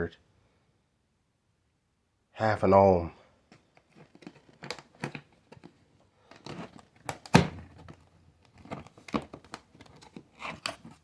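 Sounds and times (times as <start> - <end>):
cardboard rustling and scraping: 3.6 - 11.0.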